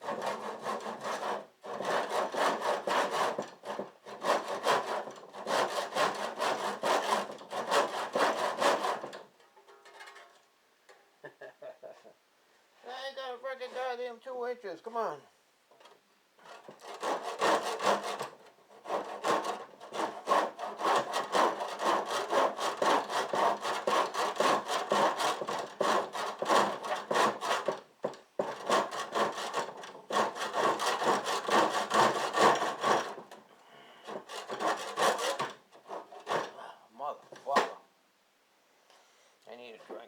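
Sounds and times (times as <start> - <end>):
handsaw cutting: 0.0 - 9.2, 16.4 - 33.4, 34.0 - 36.6.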